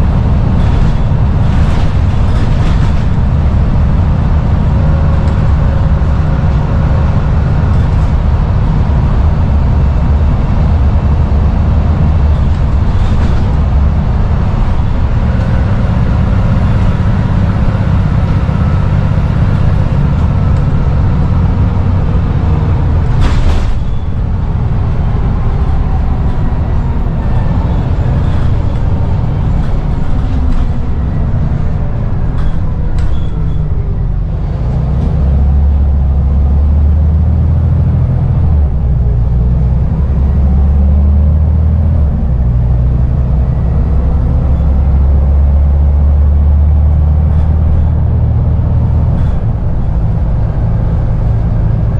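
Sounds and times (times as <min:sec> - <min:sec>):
bus diesel engine droning: 0:00.0 - 0:51.9.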